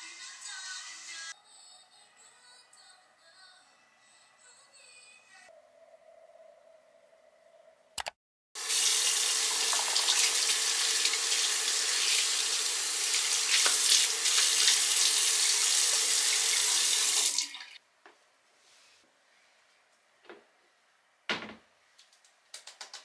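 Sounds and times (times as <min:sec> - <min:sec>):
tap water splashing into basin: 0:13.4 - 0:14.8.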